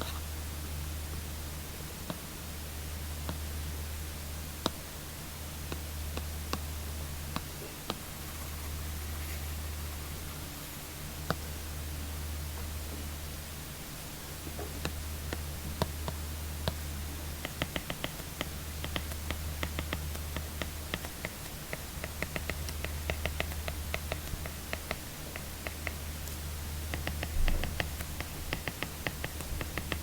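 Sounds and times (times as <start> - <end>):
low hum and hiss: 0.0 - 30.0
stylus tapping on tablet screen: 17.4 - 26.1, 26.9 - 30.0.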